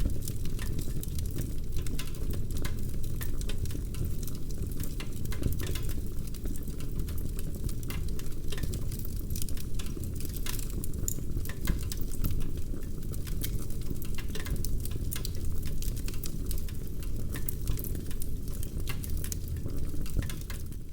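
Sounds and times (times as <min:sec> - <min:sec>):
fireplace fire crackling: 0:00.0 - 0:20.9.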